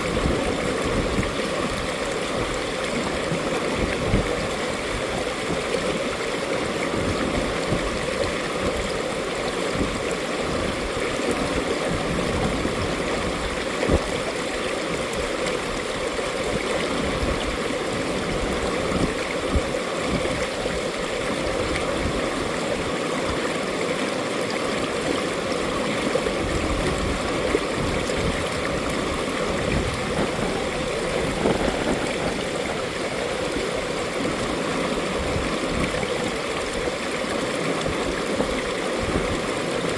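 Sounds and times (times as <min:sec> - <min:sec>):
stream flowing over rocks: 0:00.0 - 0:39.9
water splashes: 0:00.0 - 0:39.9.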